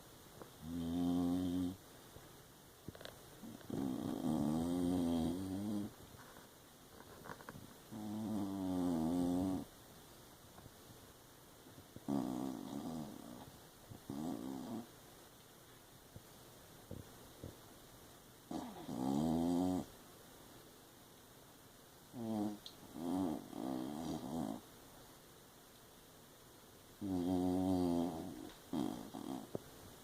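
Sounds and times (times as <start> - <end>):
dog snoring: 0.6 - 1.8, 2.9 - 6.0, 7.2 - 9.7, 12.0 - 14.9, 18.5 - 19.9, 22.1 - 24.6, 27.0 - 29.6.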